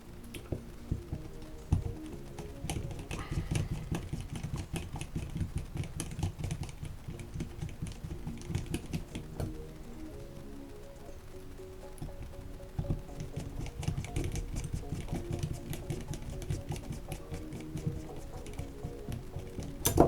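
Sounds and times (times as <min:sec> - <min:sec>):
background music: 0:00.0 - 0:20.0
plastic and metal parts clicking: 0:12.8 - 0:20.0.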